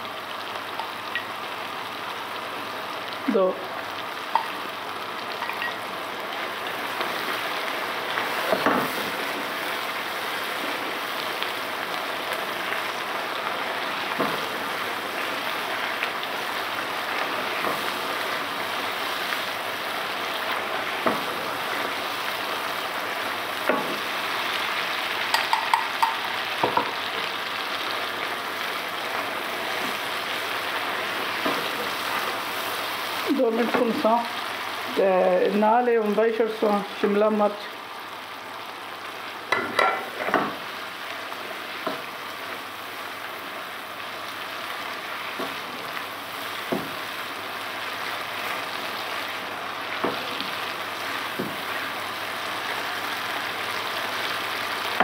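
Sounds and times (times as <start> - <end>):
food sizzling in hot oil: 0.0 - 55.0
utensil tapping pan: 4.3 - 4.6, 25.3 - 26.9.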